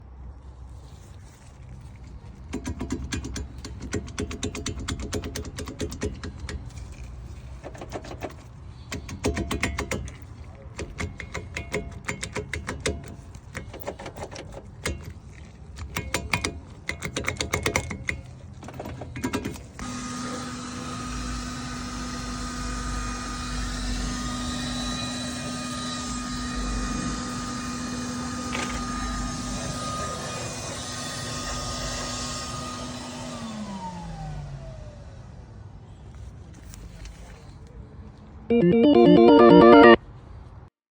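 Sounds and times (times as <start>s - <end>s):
irregular clicking and knocking: 2.3s - 19.7s.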